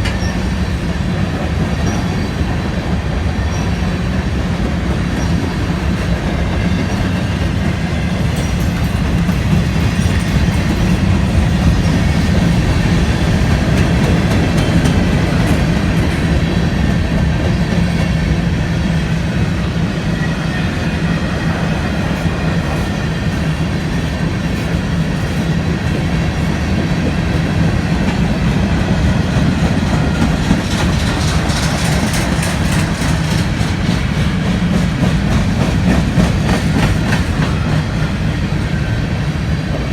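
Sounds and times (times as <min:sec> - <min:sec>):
train rumbling past: 0:00.0 - 0:39.9
wheels clacking over rail joints: 0:04.4 - 0:18.4, 0:22.6 - 0:38.1.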